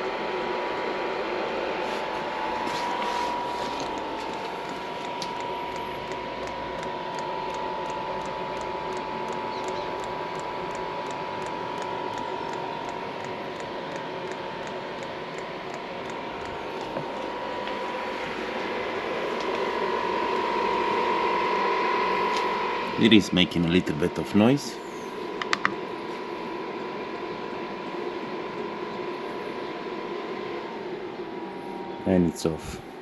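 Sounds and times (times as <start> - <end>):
heater fan whine: 0.0 - 33.0
fuel pump ticking: 3.8 - 17.4.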